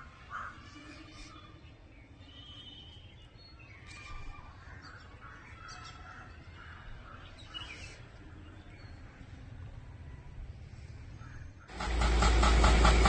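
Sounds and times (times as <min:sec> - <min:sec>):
bird chirps: 0:01.2 - 0:06.1.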